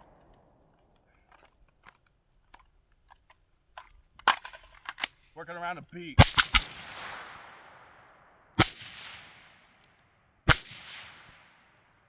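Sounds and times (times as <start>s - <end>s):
gunshots with echo: 6.2s - 9.7s, 10.5s - 11.8s.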